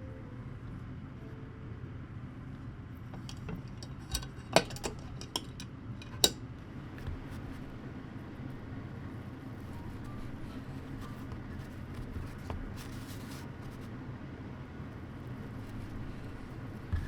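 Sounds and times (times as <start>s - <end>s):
low background hum: 0.0s - 17.0s
kitchen utensils clinking: 3.2s - 6.4s.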